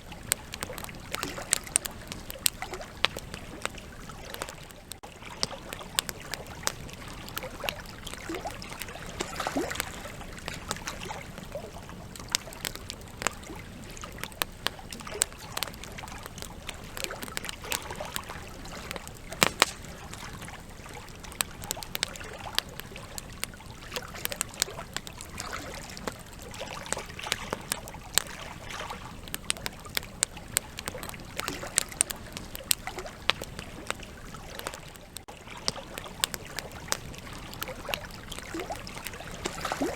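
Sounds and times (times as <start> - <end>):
campfire logs crackling and popping: 0.0 - 39.9
fire hissing: 19.2 - 20.4.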